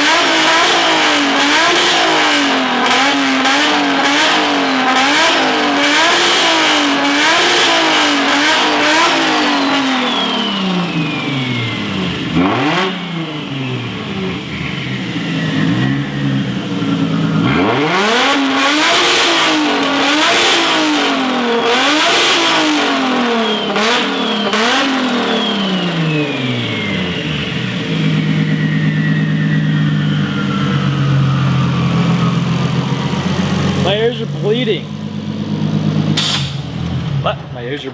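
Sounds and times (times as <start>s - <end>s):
car engine revving: 0.0s - 37.9s
turbo whistle: 7.2s - 19.5s, 20.3s - 33.3s
exhaust pops: 36.0s - 37.9s.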